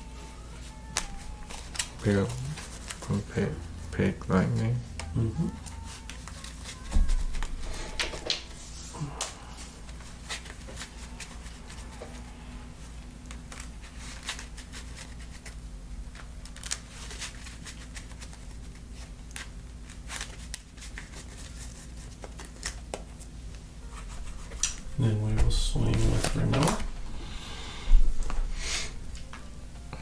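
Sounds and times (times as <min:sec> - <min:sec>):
steady low hum: 0:00.0 - 0:16.4, 0:22.9 - 0:30.0.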